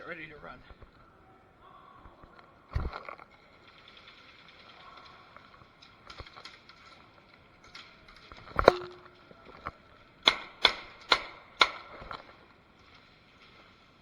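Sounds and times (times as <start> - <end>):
airsoft gun shots: 10.3 - 12.2.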